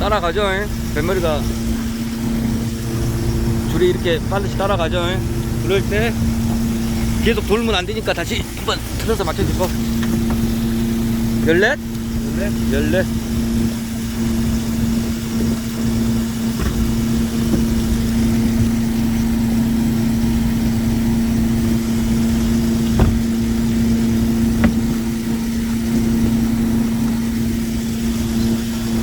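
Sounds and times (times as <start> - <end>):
boat engine humming: 0.0 - 29.0
sharp knocks: 22.8 - 25.3.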